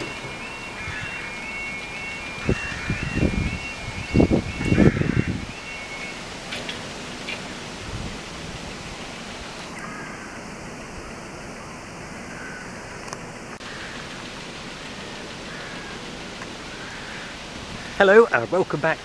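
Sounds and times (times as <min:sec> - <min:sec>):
wind on microphone: 0:02.3 - 0:05.6, 0:06.2 - 0:09.7, 0:17.4 - 0:18.0.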